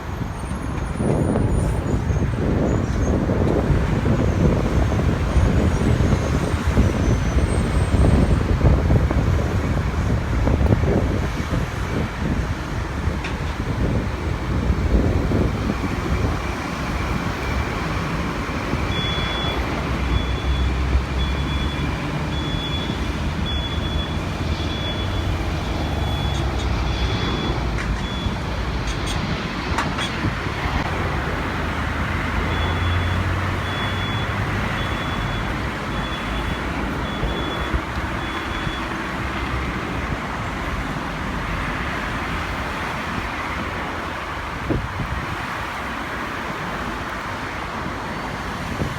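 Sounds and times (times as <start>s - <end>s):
rumble of vehicle traffic: 0.0s - 48.9s
reversing beeper: 16.0s - 28.6s, 32.2s - 38.9s.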